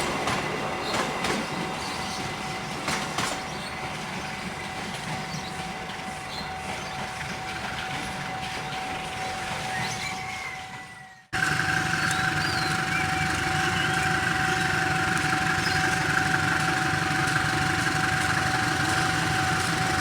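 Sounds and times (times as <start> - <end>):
wheels clacking over rail joints: 0.0 - 10.3, 11.4 - 20.0
train wheels rumbling on rails: 0.0 - 20.0
thin steady whine: 11.4 - 20.0.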